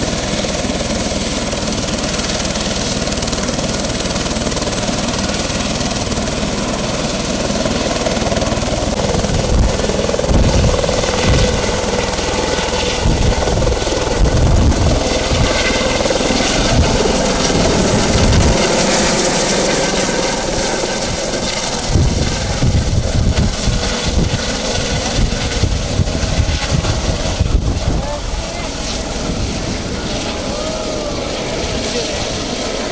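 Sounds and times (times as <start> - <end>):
helicopter turbine whine: 0.0 - 32.9
low gusty surges: 8.7 - 32.9.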